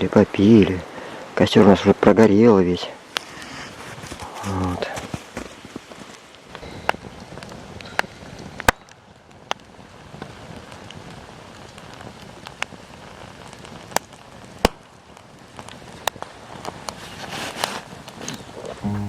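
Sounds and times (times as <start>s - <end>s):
embers crackling and hissing: 0.1s - 19.0s
sharp fire pops: 6.5s - 18.2s.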